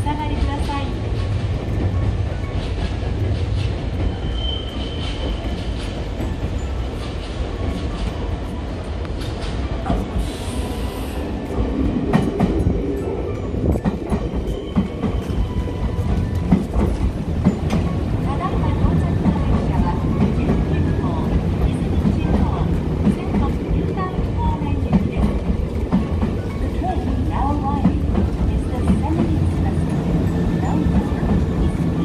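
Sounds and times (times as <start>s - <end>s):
train running rumble: 0.0s - 32.0s
wheel squeal: 4.1s - 5.6s
air hiss: 10.1s - 11.2s.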